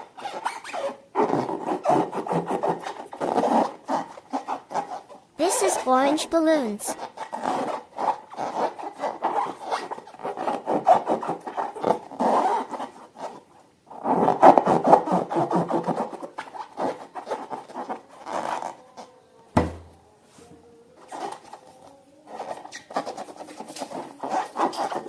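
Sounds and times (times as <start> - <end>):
sharp knock with low thud: 19.6 - 19.9.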